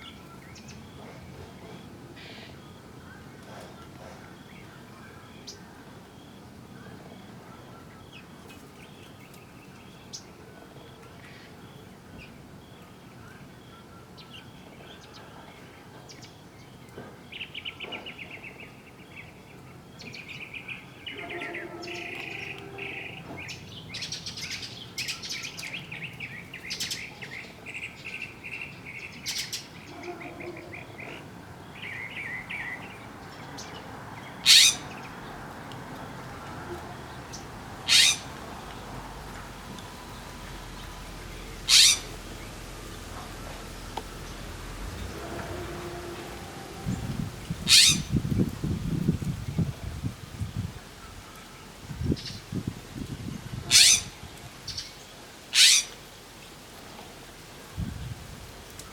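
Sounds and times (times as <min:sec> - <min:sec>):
birds chirping: 0:00.0 - 0:49.7.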